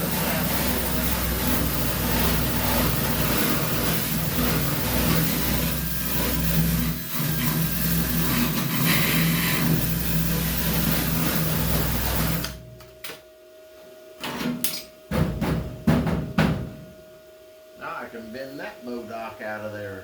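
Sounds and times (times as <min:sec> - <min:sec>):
power tool on sheet metal: 0:00.0 - 0:12.6.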